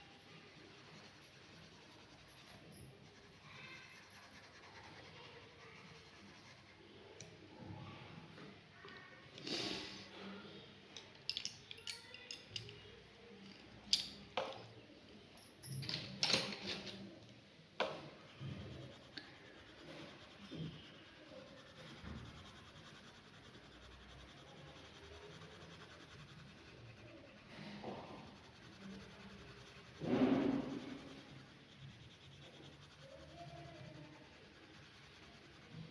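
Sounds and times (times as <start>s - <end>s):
pen scratching on paper: 0.5s - 6.8s, 17.8s - 35.7s.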